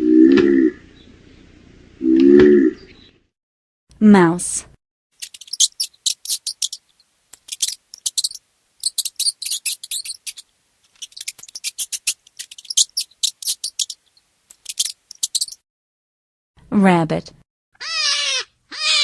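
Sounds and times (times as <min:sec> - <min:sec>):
mouse squeaking: 0:05.2 - 0:15.6, 0:17.8 - 0:19.0.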